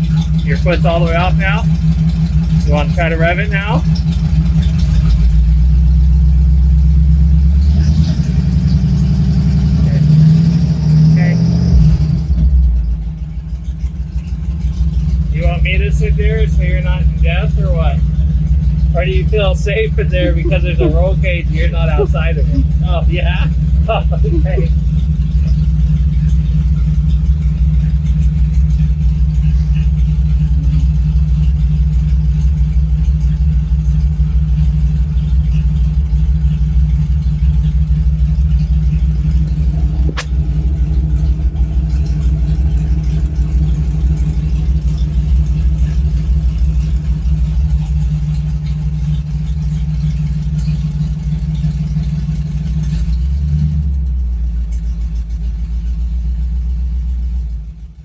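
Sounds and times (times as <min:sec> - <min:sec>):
truck engine idling: 0:00.0 - 0:58.0
sharp click: 0:40.0 - 0:40.4.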